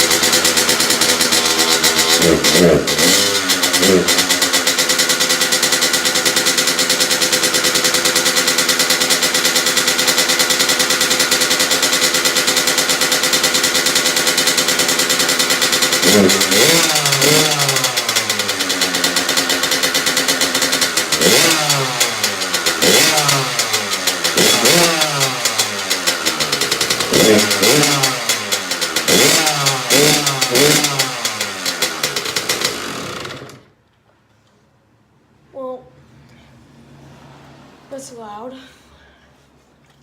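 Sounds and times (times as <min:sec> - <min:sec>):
two-stroke engine revving and idling: 0:00.0 - 0:33.8.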